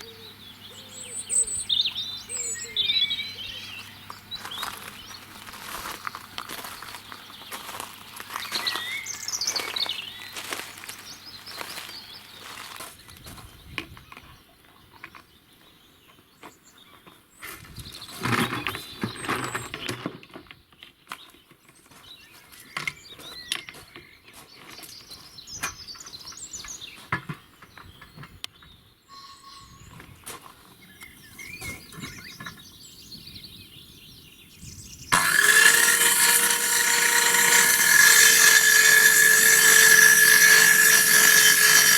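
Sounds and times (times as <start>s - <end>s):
small birds chirping: 0.0s - 19.7s
power tool motor whining: 35.1s - 41.9s.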